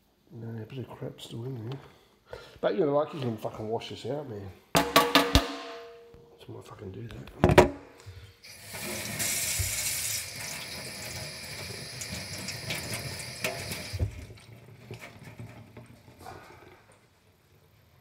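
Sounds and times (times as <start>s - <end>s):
knock: 7.4s - 7.8s
tap water running: 8.4s - 16.2s.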